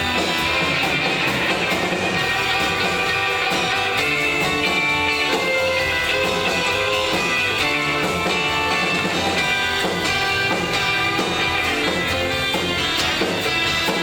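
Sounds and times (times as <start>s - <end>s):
drum beat: 0.0s - 14.0s
electric guitar: 0.0s - 14.0s.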